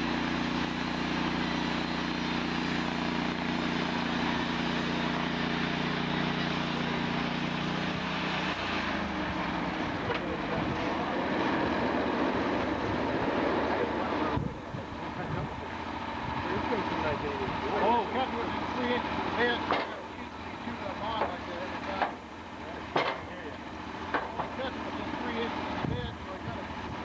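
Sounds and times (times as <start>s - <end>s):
sawmill engine running: 0.0s - 27.0s.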